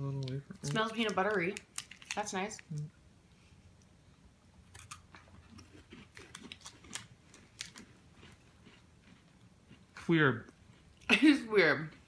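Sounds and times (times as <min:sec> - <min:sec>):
person chewing crunchy wafer bar: 0:00.2 - 0:02.2, 0:04.7 - 0:11.1.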